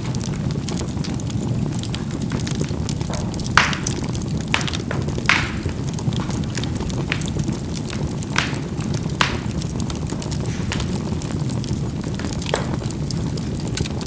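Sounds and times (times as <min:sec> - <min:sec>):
charcoal popping and crackling: 0:00.0 - 0:14.0
low rumble of fire: 0:00.0 - 0:14.0.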